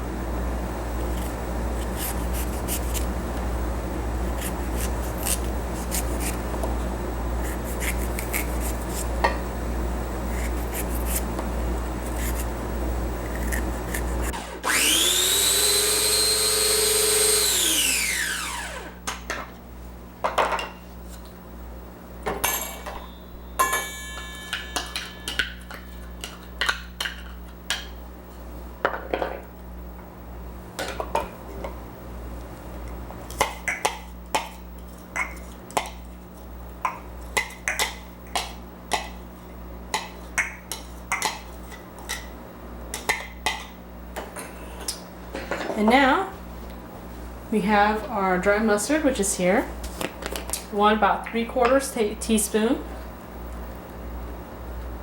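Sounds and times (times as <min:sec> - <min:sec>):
scraping and rubbing: 0:12.0 - 0:12.5
electric food chopper running: 0:14.3 - 0:19.1
utensils and dishes clinking: 0:22.4 - 0:27.4.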